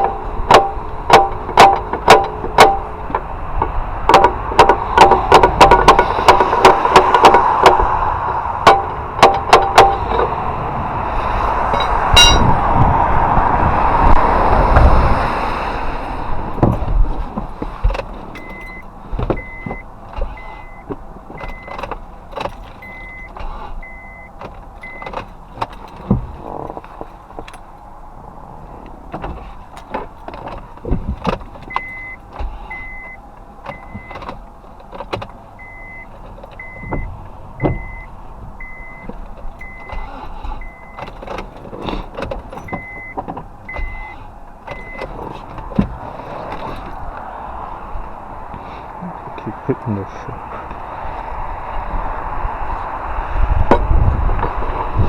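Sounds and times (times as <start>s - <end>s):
car warning chime beeping: 0.0s - 3.3s, 11.7s - 12.6s, 17.8s - 26.4s, 31.5s - 45.7s
sharp knocks and clicks: 0.0s - 10.4s, 16.4s - 27.9s, 28.8s - 47.3s.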